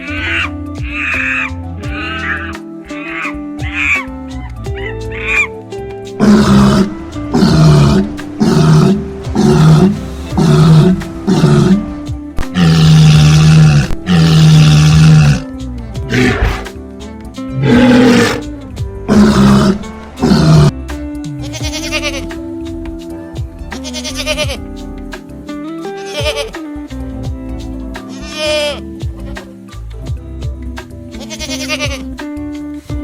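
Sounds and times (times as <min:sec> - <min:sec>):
background music: 0:00.0 - 0:33.0
large animal roaring: 0:06.2 - 0:15.5, 0:16.1 - 0:16.7, 0:17.6 - 0:18.5, 0:19.1 - 0:20.8.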